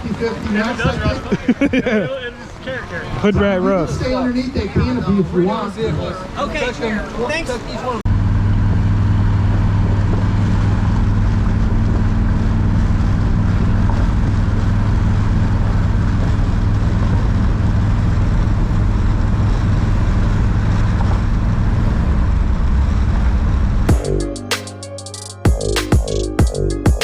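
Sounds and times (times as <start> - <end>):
engine droning steadily: 0.0 - 24.4.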